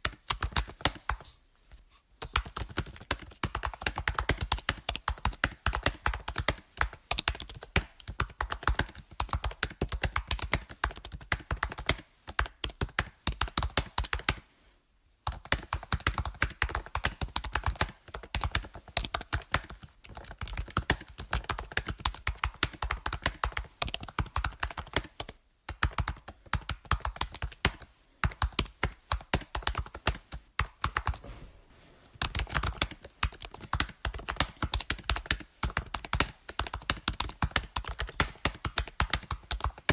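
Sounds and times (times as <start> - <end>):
keyboard keys clicking: 15.3 - 31.2, 32.2 - 39.9.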